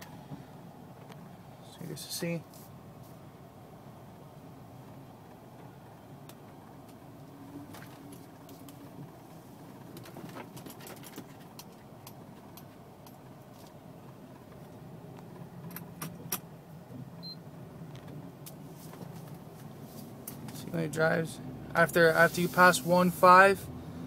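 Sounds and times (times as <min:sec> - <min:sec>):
light clicks and jingling rattles: 0:09.7 - 0:16.6.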